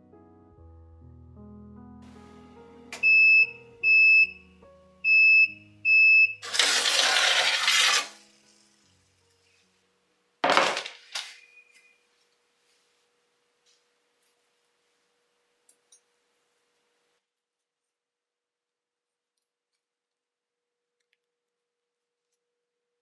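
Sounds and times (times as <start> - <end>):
soft music: 0.0 - 10.4.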